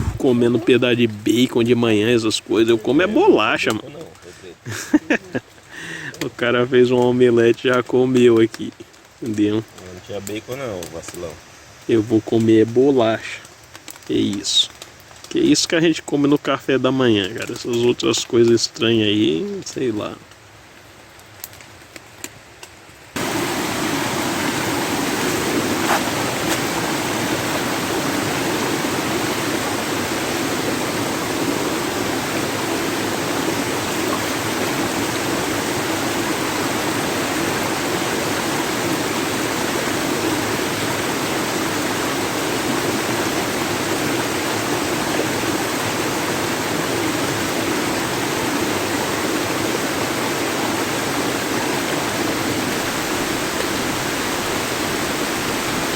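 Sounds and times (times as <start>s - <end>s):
river water rushing over rocks: 23.2s - 55.9s.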